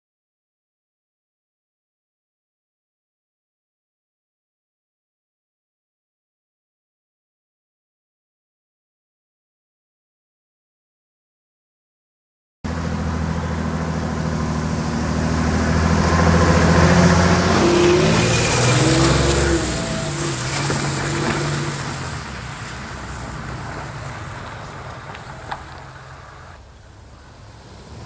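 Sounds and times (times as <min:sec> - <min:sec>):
diesel engine running: 0:12.7 - 0:28.0.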